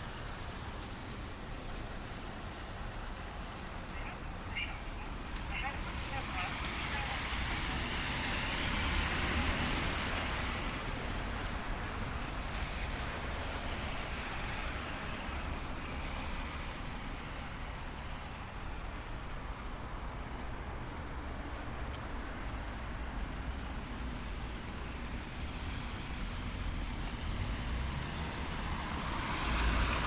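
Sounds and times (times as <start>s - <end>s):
distant traffic: 0.0s - 30.0s
tyres hissing on wet asphalt: 0.1s - 11.0s, 22.5s - 30.0s.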